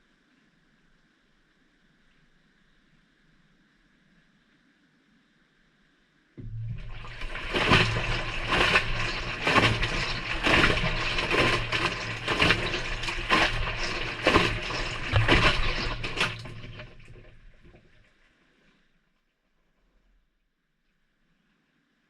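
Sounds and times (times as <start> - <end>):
washing machine motor hum: 6.4 - 18.0
laundry and water sloshing: 6.4 - 18.3.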